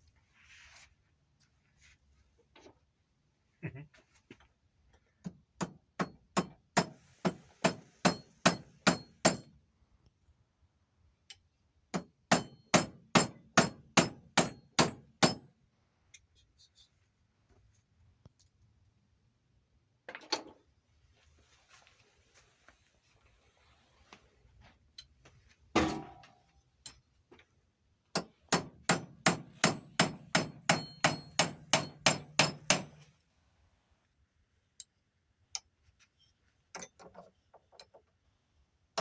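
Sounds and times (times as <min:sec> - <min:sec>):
hammer striking metal: 0:06.0 - 0:09.5, 0:12.0 - 0:15.5, 0:28.2 - 0:33.0.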